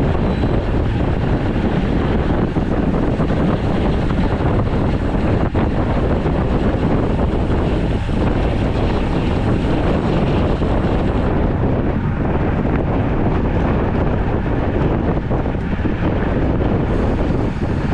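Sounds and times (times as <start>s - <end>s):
wind rushing over microphone: 0.0s - 17.9s.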